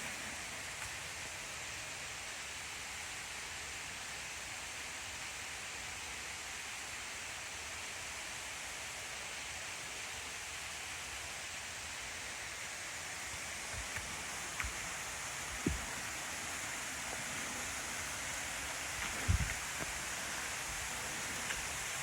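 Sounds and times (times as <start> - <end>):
waterfall rushing: 12.9 - 22.0.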